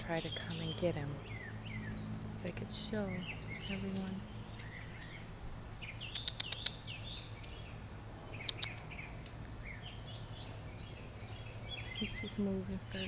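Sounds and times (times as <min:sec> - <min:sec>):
small birds chirping: 0:00.0 - 0:13.0
sharp clicks: 0:06.0 - 0:06.9, 0:08.4 - 0:08.8.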